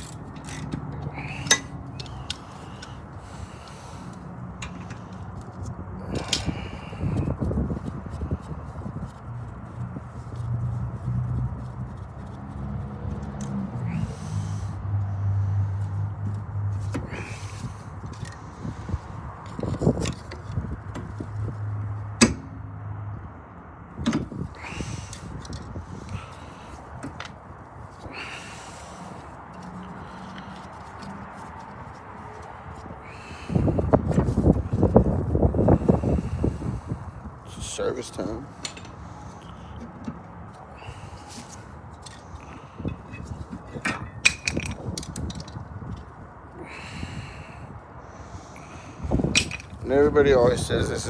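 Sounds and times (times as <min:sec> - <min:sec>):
tools and metal parts clanking: 0:00.0 - 0:03.0, 0:04.6 - 0:06.7, 0:15.8 - 0:21.5, 0:38.0 - 0:40.2, 0:41.4 - 0:46.2, 0:49.1 - 0:51.0.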